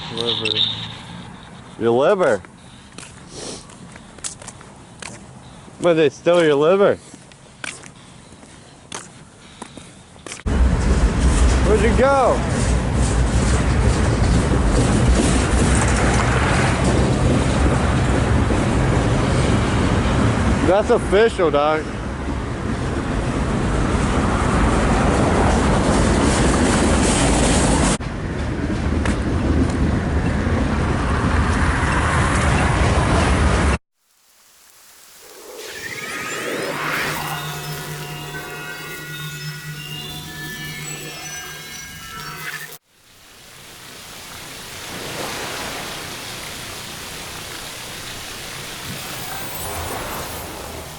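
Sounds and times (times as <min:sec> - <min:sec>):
train rumbling and rattling: 0:10.5 - 0:20.6, 0:22.0 - 0:33.7
steady rushing hiss: 0:34.0 - 0:50.9.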